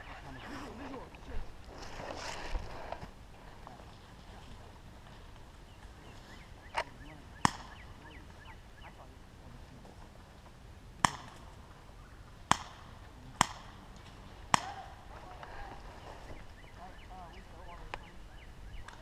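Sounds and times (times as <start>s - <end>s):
airsoft gun shots: 12.5s - 13.8s.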